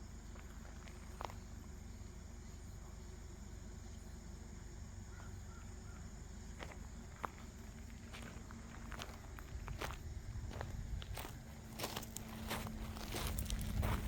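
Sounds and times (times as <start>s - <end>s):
low rumble: 9.4s - 14.0s.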